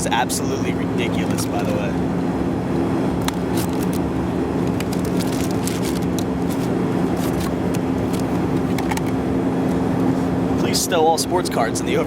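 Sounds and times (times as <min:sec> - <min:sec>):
jet cabin engine roar: 0:00.0 - 0:12.0
wrappers crinkling: 0:04.8 - 0:07.5.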